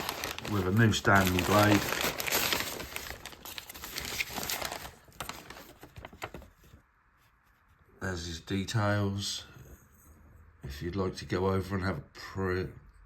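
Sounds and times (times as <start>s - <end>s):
packaging crinkling and rustling: 0.0s - 6.8s.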